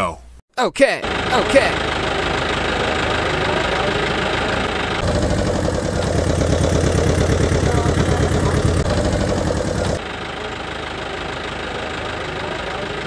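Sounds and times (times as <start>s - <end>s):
small motor running: 1.1s - 10.0s.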